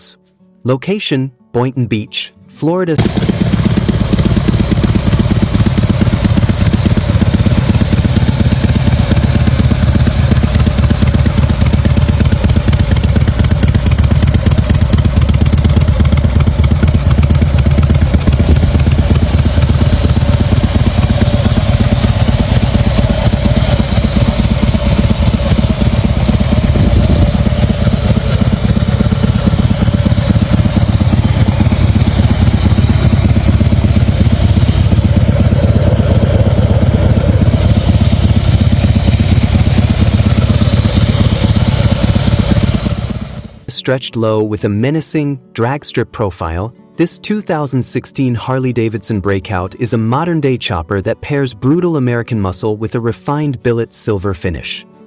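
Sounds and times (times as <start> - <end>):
motorcycle engine idling: 3.0 - 43.7.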